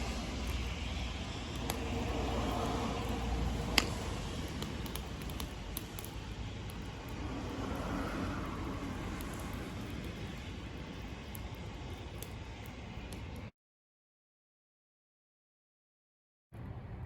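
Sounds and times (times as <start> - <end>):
steady low rumble: 0.0 - 13.5
wood fire crackling and popping: 0.0 - 13.5.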